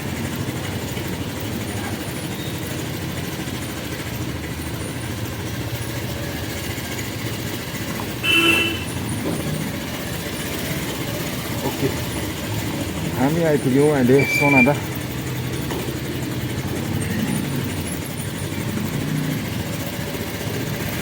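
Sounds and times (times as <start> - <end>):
motorbike engine rumble: 0.0 - 21.0
vehicle horn toot: 8.2 - 9.0.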